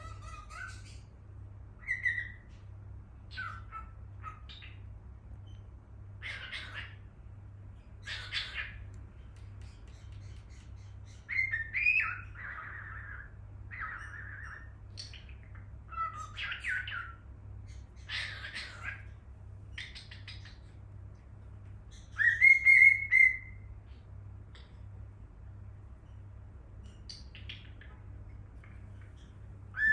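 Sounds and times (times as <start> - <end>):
cockatiel chirping and whistling: 0.0 - 1.0, 1.8 - 2.5, 3.3 - 4.8, 6.2 - 7.0, 8.0 - 8.8, 9.6 - 19.1, 19.7 - 20.6, 21.9 - 23.6.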